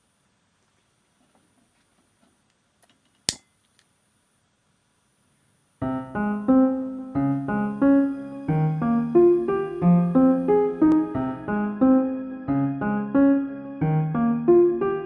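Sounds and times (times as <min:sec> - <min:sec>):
piano music: 0:05.8 - 0:15.0.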